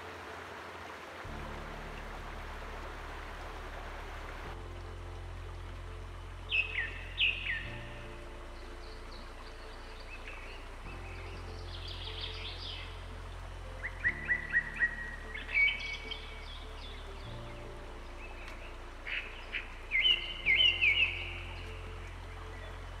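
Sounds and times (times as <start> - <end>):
soft background music: 0.0 - 23.0
birds chirping: 5.4 - 23.0.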